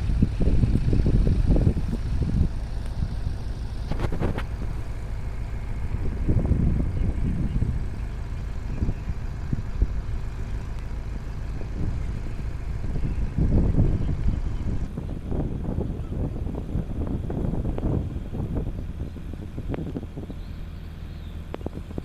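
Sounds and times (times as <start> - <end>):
diesel machinery rumbling: 0.0 - 22.0.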